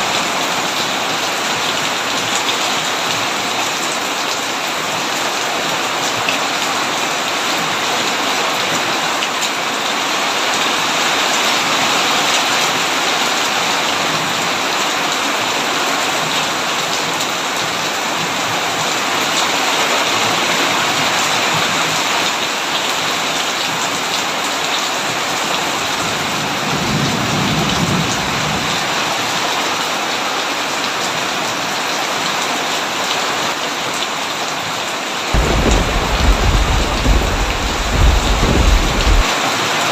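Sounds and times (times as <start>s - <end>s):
heavy rain on a tin roof: 0.0s - 39.9s
low rumble of thunder: 35.4s - 39.3s.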